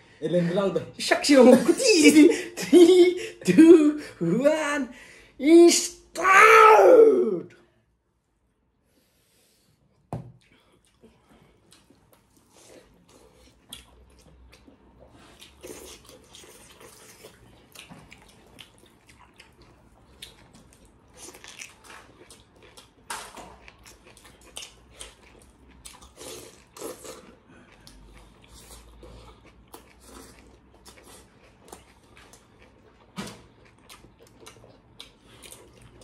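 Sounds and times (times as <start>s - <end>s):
wet chewing and mouth smacks: 10.3s - 36.0s.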